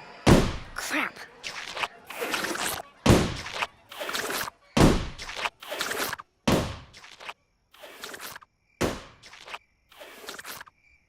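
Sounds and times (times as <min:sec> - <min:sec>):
heavy thuds: 0:00.3 - 0:00.8, 0:03.0 - 0:03.6, 0:04.8 - 0:05.4
scuffling noises: 0:00.8 - 0:06.1.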